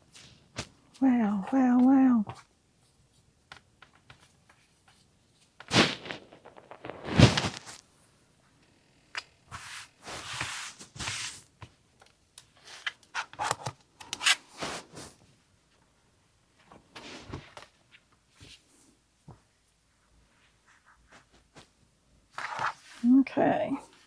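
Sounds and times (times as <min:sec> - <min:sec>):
fabric rubbing and sliding: 0:05.6 - 0:07.9, 0:09.5 - 0:11.4.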